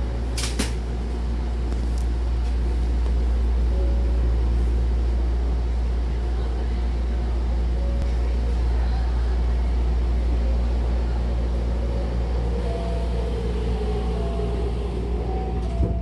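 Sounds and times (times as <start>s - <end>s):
train equipment hum: 0.0s - 16.0s
train doors sliding shut: 15.3s - 16.0s.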